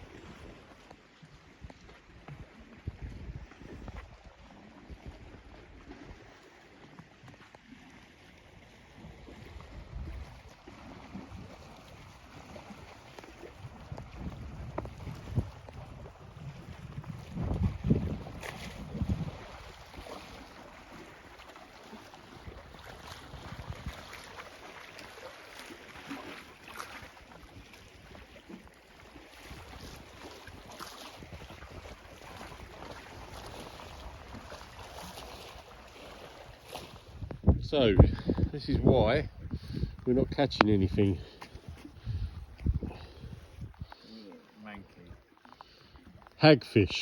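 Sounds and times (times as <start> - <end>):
wind buffeting microphone: 2.8 - 4.3, 9.4 - 10.6, 13.3 - 20.2, 22.4 - 24.3, 36.4 - 44.0.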